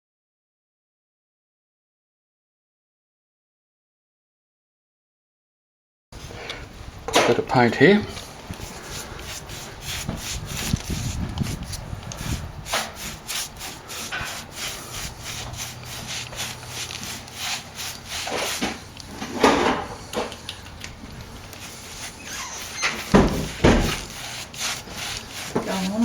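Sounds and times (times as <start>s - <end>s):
paintbrush scraping on plaster wall: 7.3s - 20.4s, 21.3s - 26.0s.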